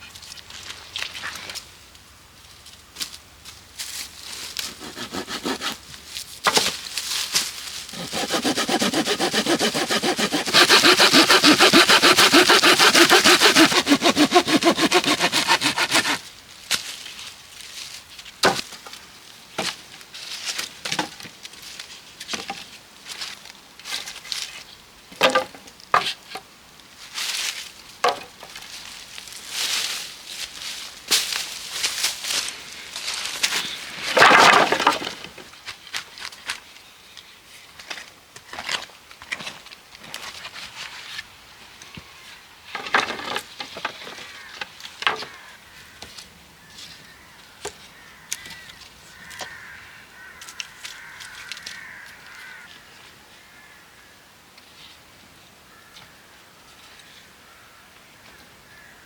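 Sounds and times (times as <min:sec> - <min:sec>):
wood being sawn: 0:04.6 - 0:05.9, 0:07.9 - 0:16.2.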